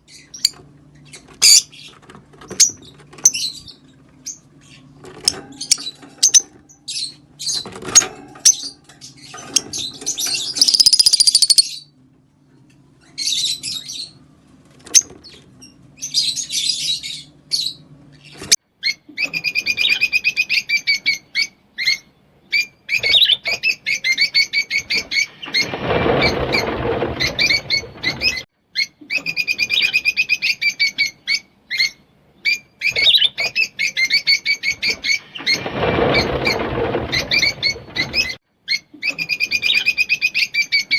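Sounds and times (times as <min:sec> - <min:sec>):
lovebirds chirping and chattering: 0:00.0 - 0:11.9, 0:13.0 - 0:14.2, 0:14.9 - 0:40.9
rough rushing sound: 0:35.3 - 0:38.4.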